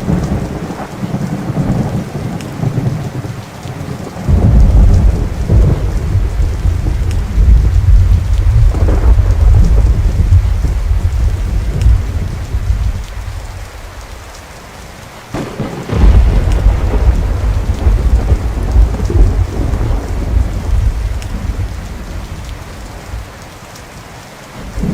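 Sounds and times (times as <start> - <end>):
steady rain falling: 0.0 - 24.9
rolling thunder: 4.1 - 13.7, 15.3 - 23.3, 24.6 - 24.9
thunderclap crack: 4.3 - 13.0, 15.3 - 21.7.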